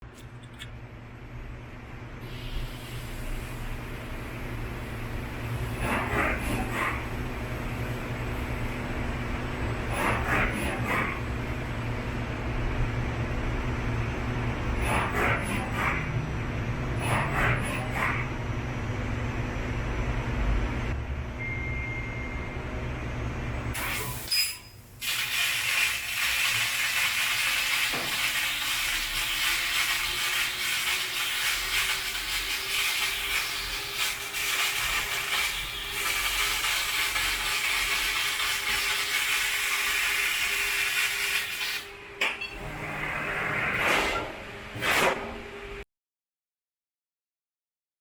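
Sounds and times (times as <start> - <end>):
machine low rumble: 18.2 - 23.8
hiss of laser cutting metal: 25.0 - 41.8.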